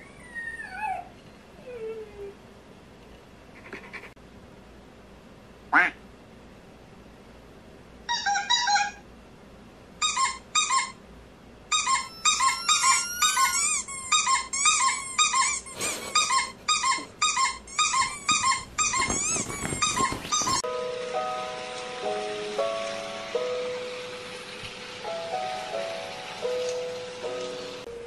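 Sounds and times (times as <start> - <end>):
high-pitched squeaks from phone: 10.0 - 11.0, 11.7 - 20.6
bedding rustling: 18.0 - 20.7.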